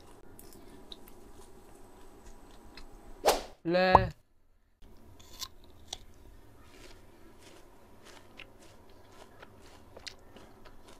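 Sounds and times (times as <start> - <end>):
person chewing crunchy fruit: 5.0 - 10.9.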